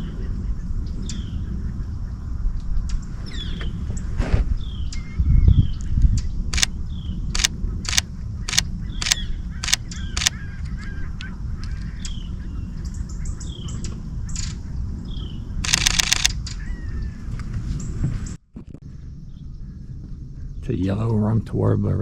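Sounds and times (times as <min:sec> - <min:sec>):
low rumble: 0:00.0 - 0:22.0
camera shutter firing: 0:06.5 - 0:06.8, 0:07.4 - 0:10.4, 0:15.6 - 0:16.4.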